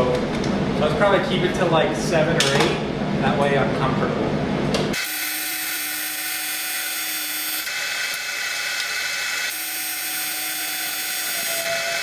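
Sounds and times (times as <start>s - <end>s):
welding arc buzzing: 4.9s - 12.0s.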